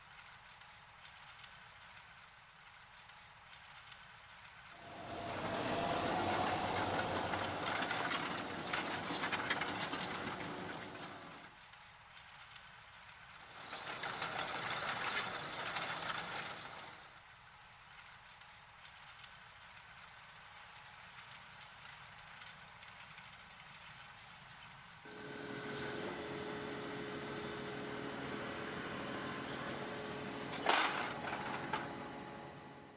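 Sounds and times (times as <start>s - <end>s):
tractor engine: 4.5s - 17.2s, 20.0s - 32.9s
row-crop hoe machine noise: 4.6s - 11.5s, 25.1s - 32.9s.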